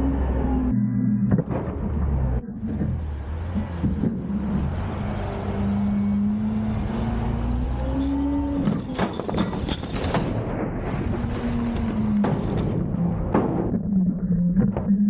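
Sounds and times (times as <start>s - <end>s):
hydraulic whine climbing in pitch: 0.0s - 1.4s, 2.2s - 8.6s
garbage truck engine revving: 0.0s - 15.0s
loud clanks and bangs: 8.1s - 13.9s.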